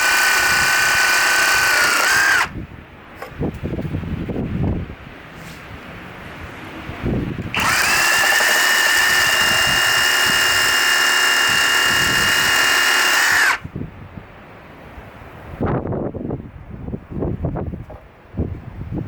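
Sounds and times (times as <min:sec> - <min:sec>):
reciprocating saw whine: 0:00.0 - 0:02.6, 0:07.5 - 0:13.6.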